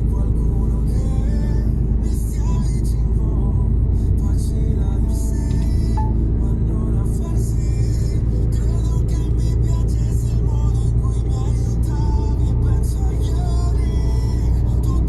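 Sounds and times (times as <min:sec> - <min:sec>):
music playing: 0:00.0 - 0:15.0
truck diesel engine droning: 0:00.0 - 0:15.0.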